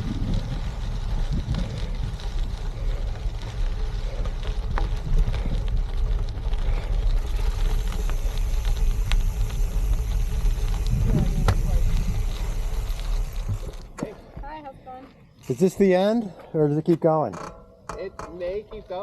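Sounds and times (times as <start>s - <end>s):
wind buffeting microphone: 0.0s - 14.6s
bike tyres rolling on gravel: 0.0s - 17.9s.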